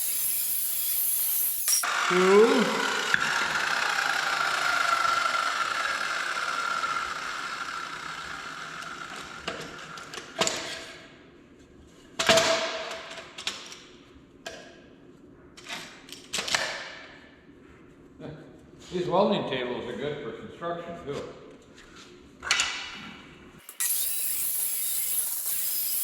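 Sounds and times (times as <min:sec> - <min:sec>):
power tool motor spinning down: 0:00.0 - 0:09.9, 0:23.6 - 0:26.0.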